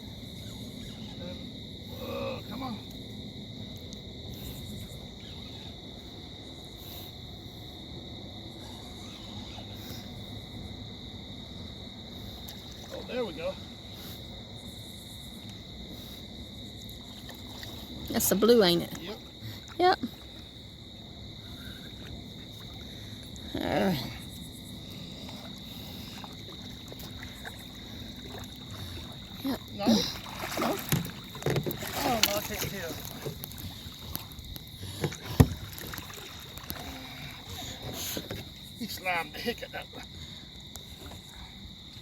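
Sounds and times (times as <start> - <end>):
crickets trilling: 0.0 - 42.0
insects chirring: 0.0 - 42.0
low constant rumble: 9.7 - 42.0.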